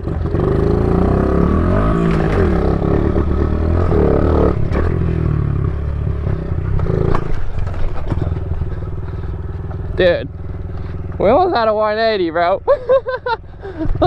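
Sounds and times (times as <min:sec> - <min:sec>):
small motorbike engine revving: 0:00.0 - 0:11.5
knocks and scrapes: 0:01.9 - 0:11.2
bike landing with clattering impact: 0:06.7 - 0:09.9.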